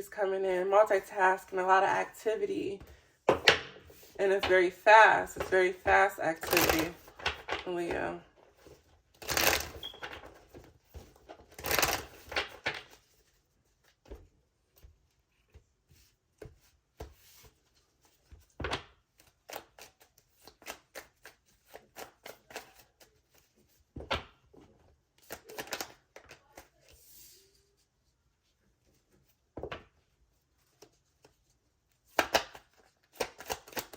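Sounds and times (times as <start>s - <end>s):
cards shuffling: 2.9s - 14.2s, 19.2s - 23.7s, 25.2s - 27.1s, 32.0s - 33.9s
cards clicking and tapping: 5.3s - 7.7s, 18.3s - 24.4s, 25.2s - 26.7s, 32.1s - 33.9s.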